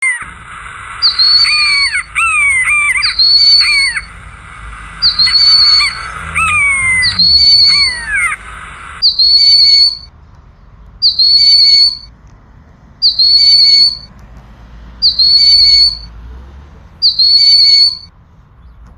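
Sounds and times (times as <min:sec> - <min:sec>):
birds whistling: 0:00.0 - 0:10.1, 0:11.0 - 0:12.1, 0:13.0 - 0:14.1, 0:15.0 - 0:16.2, 0:17.0 - 0:18.8
loud falling whistles: 0:00.0 - 0:10.1, 0:11.0 - 0:12.1, 0:13.0 - 0:14.1, 0:15.0 - 0:16.2, 0:17.0 - 0:18.1.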